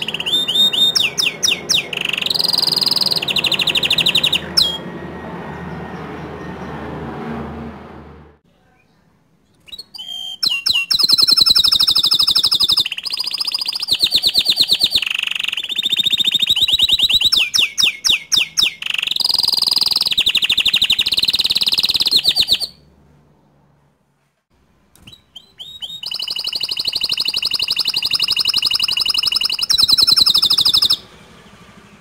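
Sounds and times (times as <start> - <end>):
canary singing trills: 0.0 - 6.9, 9.5 - 22.9, 25.0 - 32.0.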